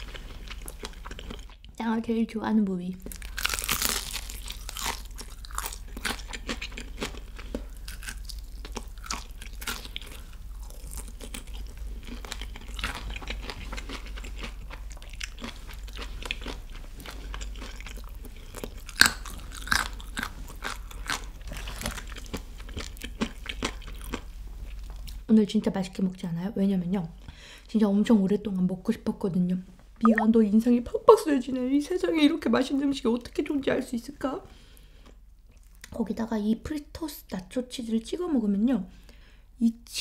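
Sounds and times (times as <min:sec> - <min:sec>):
chewing crispy fried chicken: 0:00.0 - 0:01.8, 0:03.0 - 0:25.3, 0:34.6 - 0:36.0.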